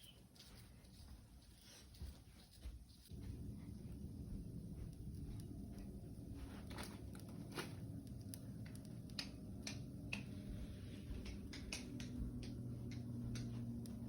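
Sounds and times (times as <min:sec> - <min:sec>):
low steady hum: 0:00.0 - 0:14.0
wood fire crackling: 0:03.1 - 0:14.0.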